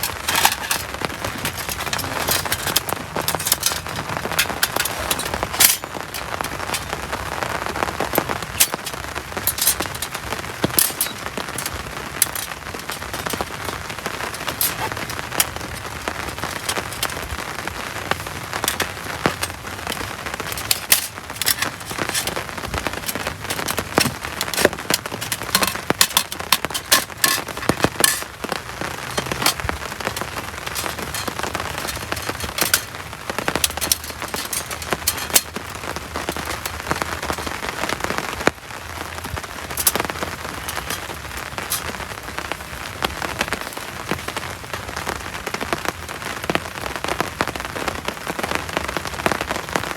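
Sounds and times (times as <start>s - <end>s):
heavy rain falling: 0.0s - 49.9s
raindrops ticking on a surface: 0.0s - 49.9s.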